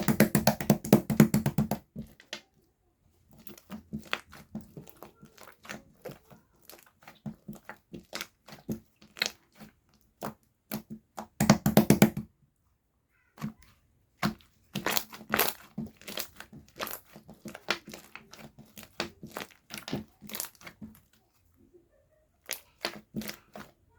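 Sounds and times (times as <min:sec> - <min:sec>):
slime crackling and clicking: 0:14.2 - 0:20.8.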